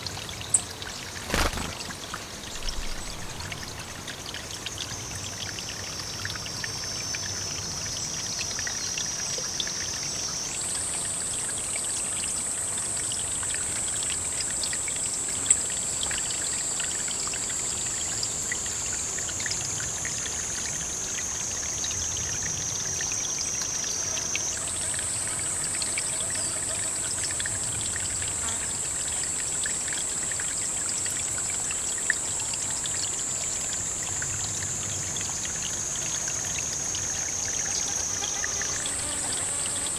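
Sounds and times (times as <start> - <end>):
water pouring: 1.0 - 4.6.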